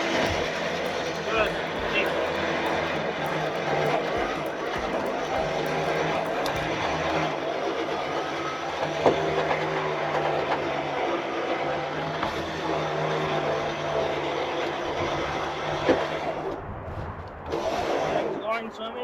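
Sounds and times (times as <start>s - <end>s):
electric winch humming: 0.0s - 7.6s.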